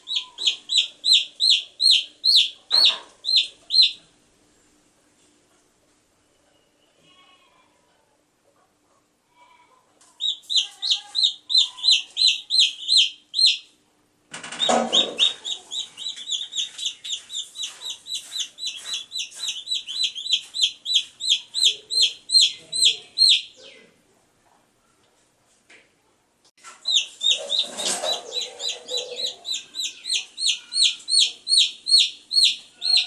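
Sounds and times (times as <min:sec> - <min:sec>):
baby chicks peeping: 0:00.0 - 0:04.1, 0:09.9 - 0:24.0, 0:26.6 - 0:33.0.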